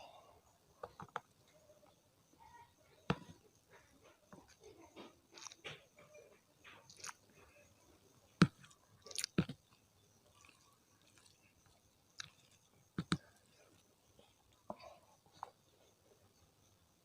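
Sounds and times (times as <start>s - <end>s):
person chewing food: 3.7s - 7.6s, 8.3s - 16.0s.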